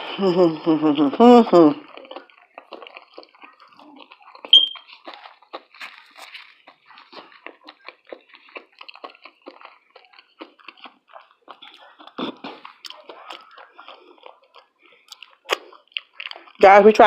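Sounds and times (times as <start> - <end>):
wet mouth sounds: 0.0 - 16.6
chewing and biting food: 0.0 - 17.0.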